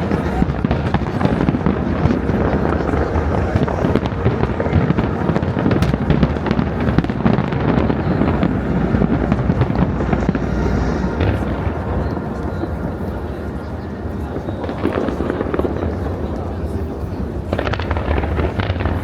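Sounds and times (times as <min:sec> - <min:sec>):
fireworks bangs and crackles: 0:00.0 - 0:19.0
low rumble: 0:07.8 - 0:14.4.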